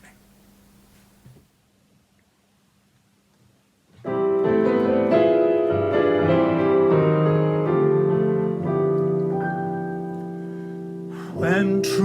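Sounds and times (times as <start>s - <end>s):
piano chords: 4.0s - 12.0s.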